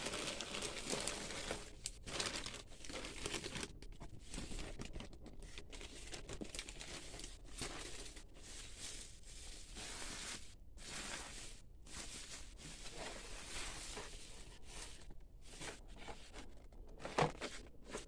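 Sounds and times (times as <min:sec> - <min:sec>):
packaging crinkling and tearing: 0:00.0 - 0:09.0.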